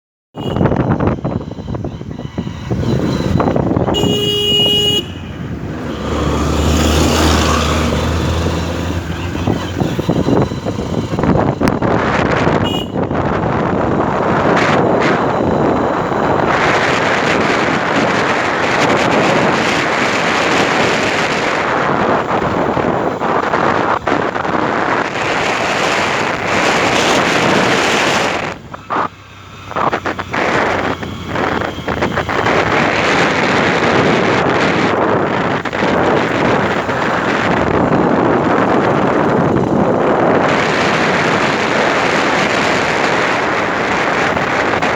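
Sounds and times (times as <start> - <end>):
motorcycle road noise: 0.3 - 44.9
vehicle horn honking: 0.4 - 1.0, 3.1 - 6.2, 12.4 - 13.4
wind buffeting microphone: 0.4 - 44.9.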